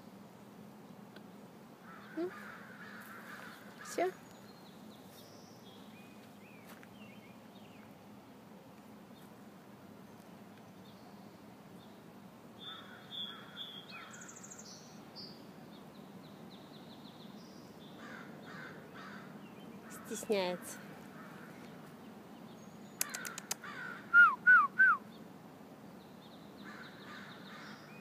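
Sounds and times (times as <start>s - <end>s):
scratchy bird calls: 1.9s - 4.4s, 22.9s - 24.1s
high rapid bird trills: 22.5s - 24.2s.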